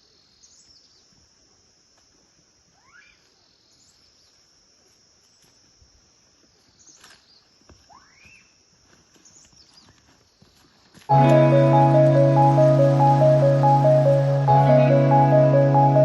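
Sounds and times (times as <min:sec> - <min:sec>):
insects chirring: 0:00.0 - 0:16.0
faint rising call: 0:11.1 - 0:16.0.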